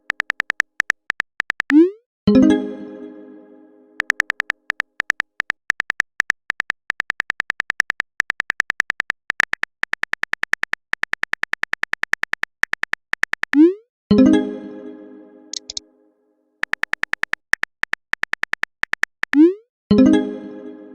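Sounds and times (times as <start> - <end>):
phone keyboard typing clicks: 0.0 - 1.9, 4.0 - 13.6, 15.6 - 15.8, 16.6 - 19.5.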